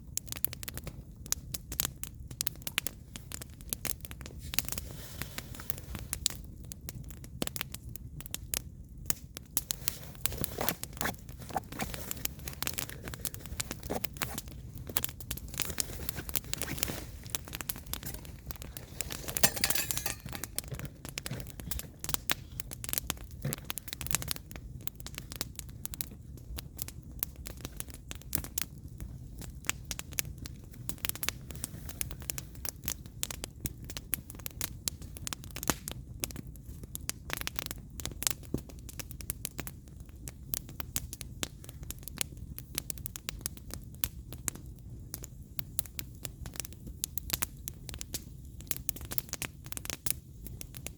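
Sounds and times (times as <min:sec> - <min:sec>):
firewood crackling and popping: 0:00.0 - 0:50.9.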